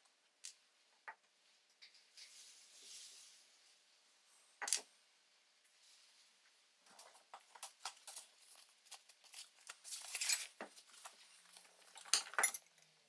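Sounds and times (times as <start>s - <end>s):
small parts clicking and tapping: 4.6s - 4.9s, 6.9s - 13.0s.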